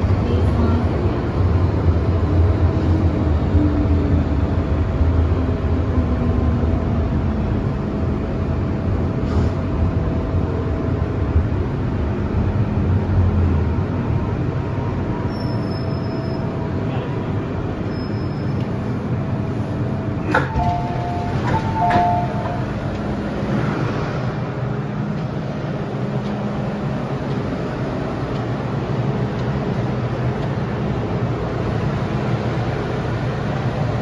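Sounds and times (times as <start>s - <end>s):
train wheels rumbling: 0.0s - 34.0s
faint whine tones: 14.6s - 23.2s
high brake squeals: 15.2s - 16.6s, 17.8s - 18.7s.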